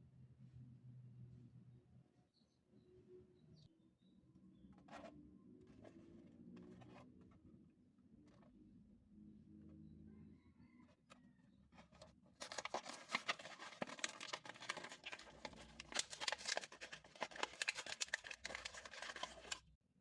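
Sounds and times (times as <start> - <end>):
crackle of clicks and tearing: 12.4 - 19.6
toy packaging being opened: 12.4 - 19.6.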